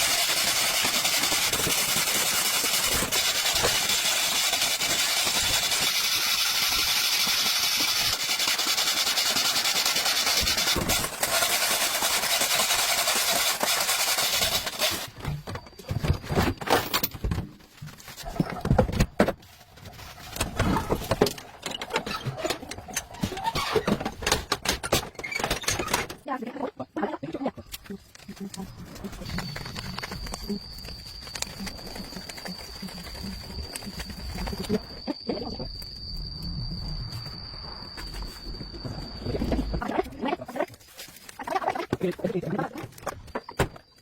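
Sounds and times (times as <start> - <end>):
machine hissing: 0.0 - 15.2.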